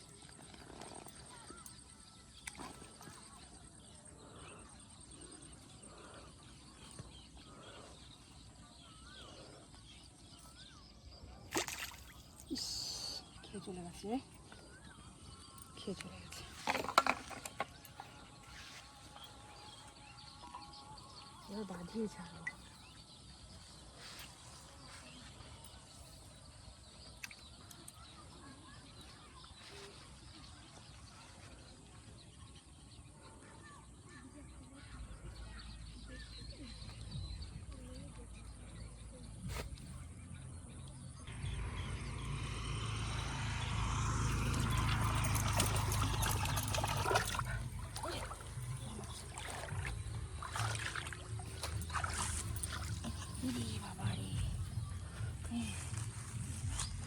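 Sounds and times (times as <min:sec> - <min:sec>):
faint birdsong: 0:00.0 - 0:57.0.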